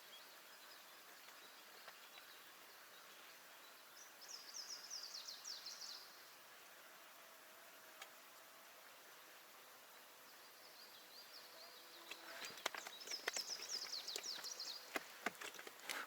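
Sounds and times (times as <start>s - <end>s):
small songbird singing: 0.0s - 6.4s, 9.9s - 15.6s.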